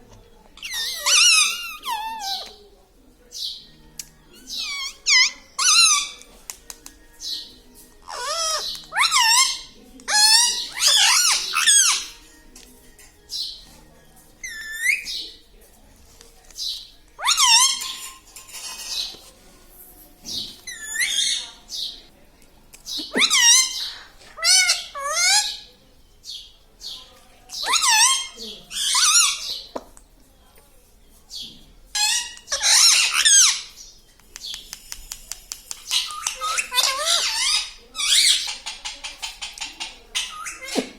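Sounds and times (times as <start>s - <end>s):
parrot squawking: 0.6s - 2.5s, 4.4s - 6.2s, 8.1s - 12.2s, 14.4s - 15.1s, 17.2s - 18.2s, 20.7s - 21.5s, 23.0s - 25.7s, 27.6s - 29.6s, 32.0s - 33.7s, 35.9s - 40.9s.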